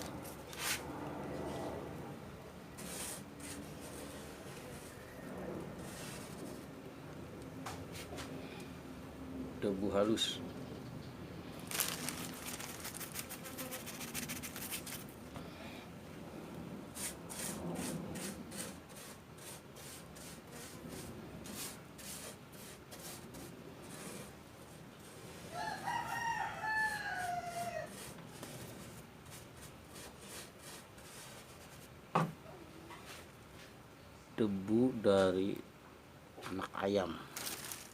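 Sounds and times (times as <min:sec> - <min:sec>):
rubbing or scrubbing strokes: 0:02.8 - 0:05.1, 0:05.7 - 0:06.7, 0:11.7 - 0:15.1, 0:17.0 - 0:25.5, 0:26.9 - 0:31.9
rooster crowing: 0:25.5 - 0:28.1.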